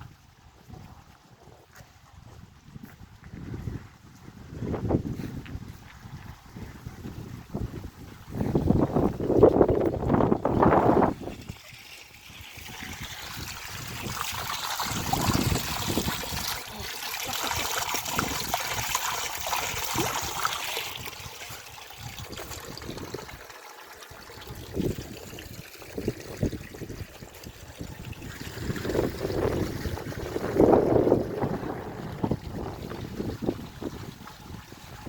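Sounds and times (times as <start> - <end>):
wind on microphone: 0.0 - 16.8, 24.5 - 35.0
stream trickling: 0.0 - 35.0.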